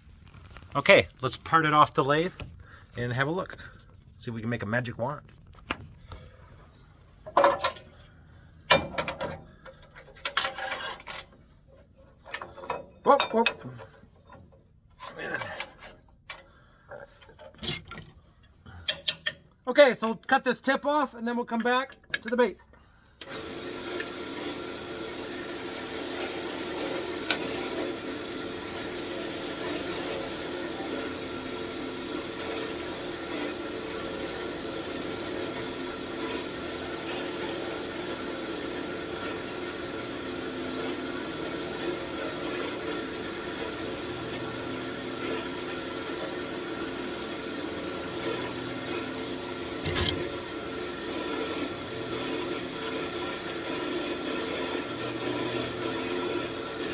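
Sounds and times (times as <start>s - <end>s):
wood lathe running: 23.2s - 56.9s.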